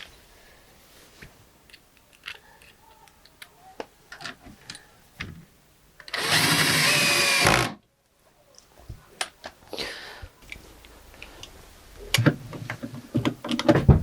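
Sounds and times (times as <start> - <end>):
power drill driving a screw: 6.1 - 7.8
handling clicks and knocks: 12.1 - 14.0.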